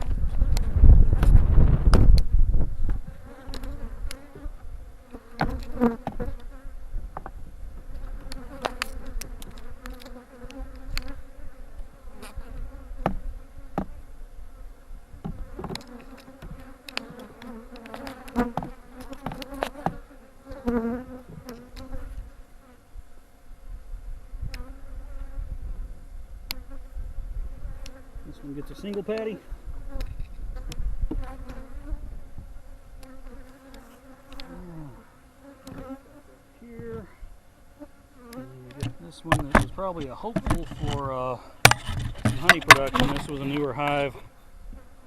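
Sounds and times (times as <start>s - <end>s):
honeybees buzzing: 0.0s - 45.0s
hive frames knocking: 5.3s - 6.3s, 13.0s - 14.0s, 15.2s - 17.3s, 17.9s - 20.0s, 38.8s - 43.4s.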